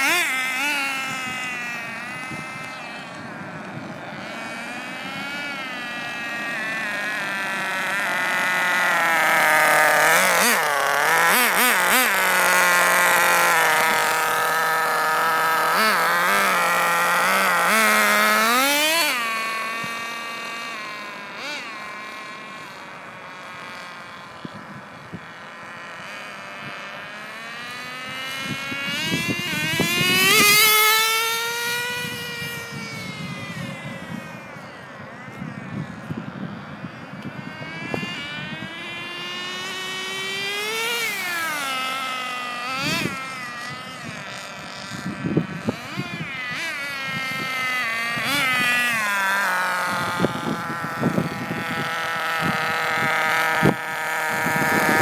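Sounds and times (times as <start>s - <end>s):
rc car engine at high revs: 0.0s - 55.0s.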